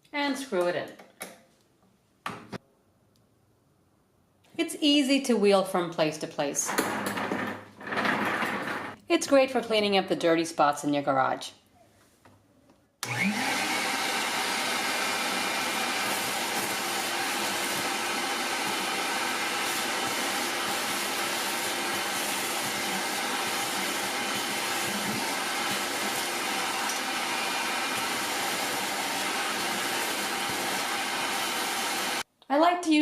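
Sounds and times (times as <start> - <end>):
shop vacuum running: 13.0 - 32.2.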